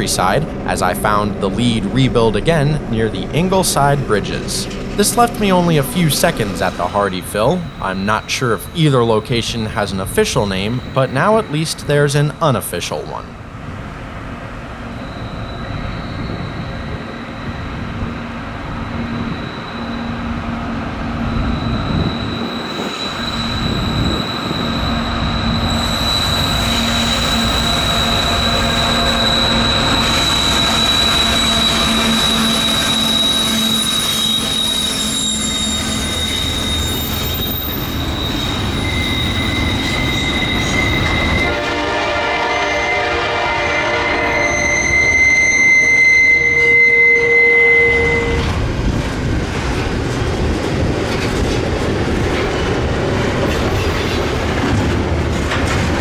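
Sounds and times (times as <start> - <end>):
diesel freight train passing: 0.0 - 56.0
high-pitched wheel squeal: 4.6 - 12.6, 14.9 - 48.6.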